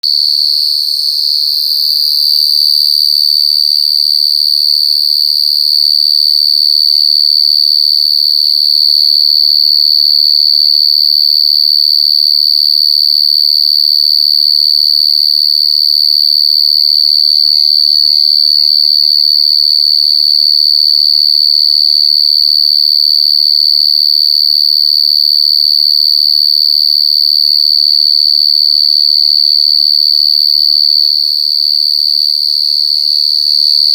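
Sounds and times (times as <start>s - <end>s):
cricket trilling: 0.0s - 13.6s, 32.1s - 33.9s.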